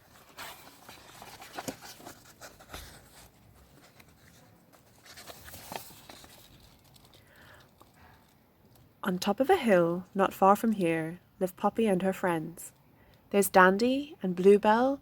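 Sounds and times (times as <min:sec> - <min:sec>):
paper book rustling: 0:00.0 - 0:08.3.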